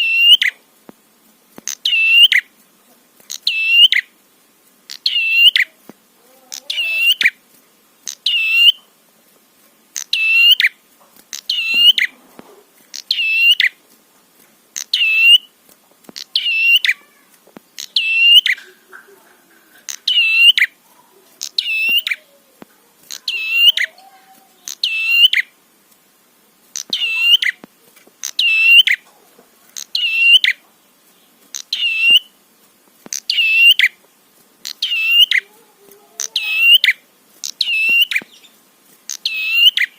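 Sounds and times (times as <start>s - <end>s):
songbird calling: 0.0s - 0.6s, 1.6s - 4.2s, 4.8s - 7.4s, 8.0s - 9.0s, 9.9s - 12.3s, 12.9s - 13.8s, 14.8s - 25.6s, 26.6s - 32.4s, 33.0s - 34.0s, 34.6s - 39.9s.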